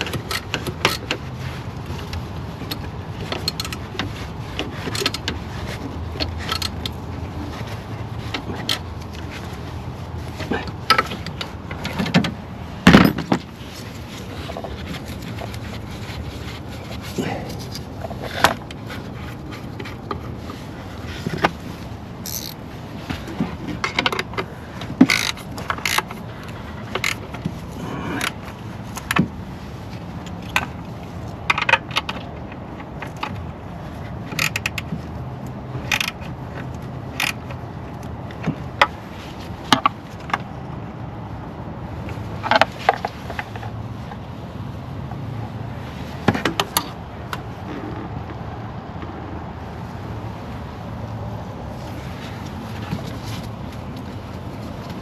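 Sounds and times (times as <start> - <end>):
hand tools and metal parts clinking: 0.0 - 29.2.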